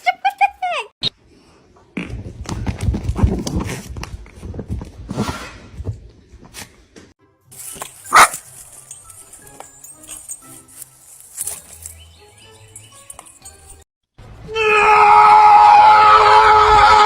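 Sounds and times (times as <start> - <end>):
dog barking: 8.1 - 8.5.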